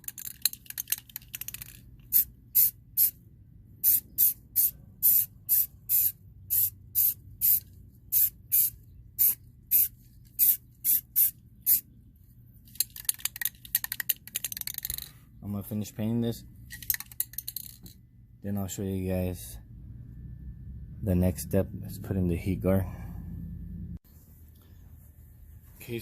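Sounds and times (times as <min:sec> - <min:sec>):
aerosol can rattling: 0:00.0 - 0:02.7, 0:12.7 - 0:15.1
spray paint hissing bursts: 0:02.1 - 0:03.2, 0:03.8 - 0:11.8.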